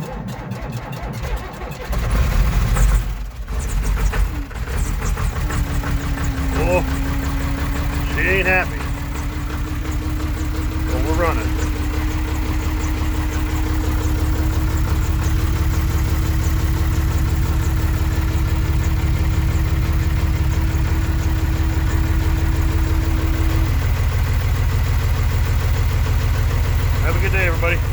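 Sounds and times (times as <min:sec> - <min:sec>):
diesel engine idling rough: 0:00.0 - 0:27.9
steady whine: 0:04.1 - 0:24.0.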